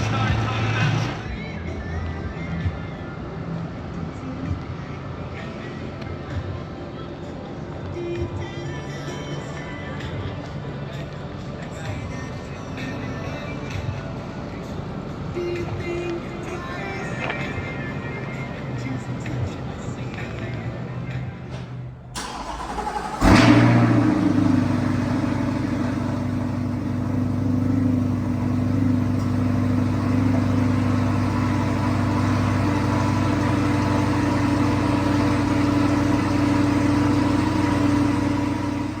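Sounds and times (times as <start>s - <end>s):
car engine idling: 21.1s - 39.0s
car engine starting: 21.2s - 39.0s.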